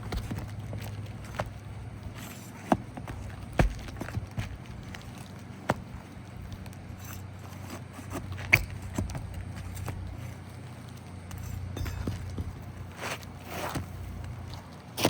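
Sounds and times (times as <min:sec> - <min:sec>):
tools scraping roof shingles: 0:00.0 - 0:15.0
metallic ring: 0:11.4 - 0:12.4.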